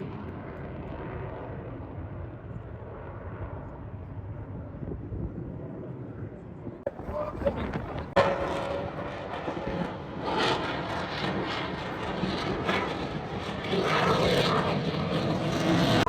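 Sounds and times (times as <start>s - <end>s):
plane flying past: 0.0s - 16.0s.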